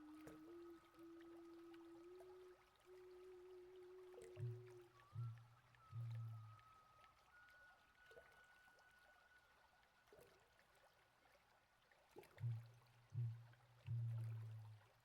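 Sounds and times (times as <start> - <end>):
flute-like note: 0.0 - 9.6
faint trickling water: 0.0 - 15.0.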